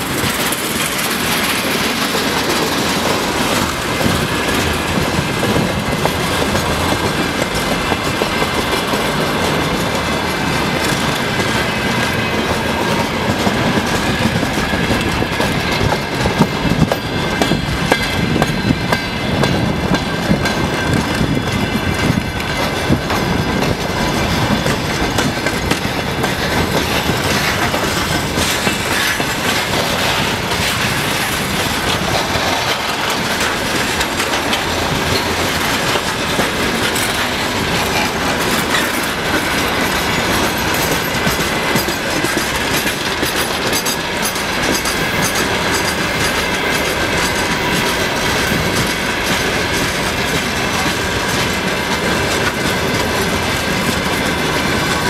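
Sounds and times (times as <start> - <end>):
freight train wheels clacking: 0.0 - 55.0.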